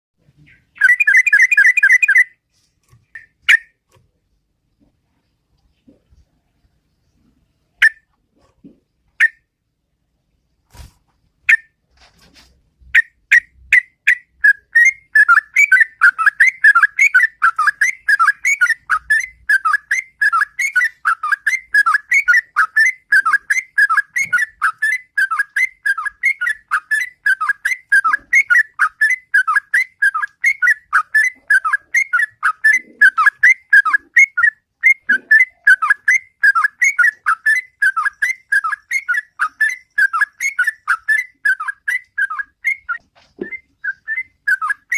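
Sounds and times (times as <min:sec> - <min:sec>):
bird singing: 0:00.2 - 0:02.4, 0:12.9 - 0:44.9.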